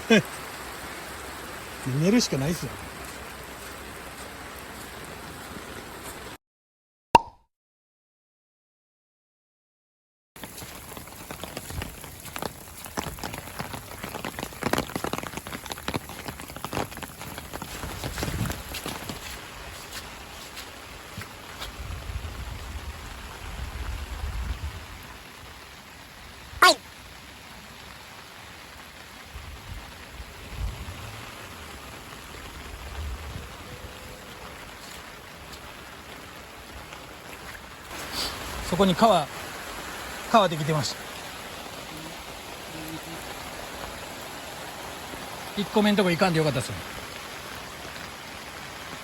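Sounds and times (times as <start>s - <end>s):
rain drumming on a tent: 0.0s - 6.4s, 10.4s - 49.0s.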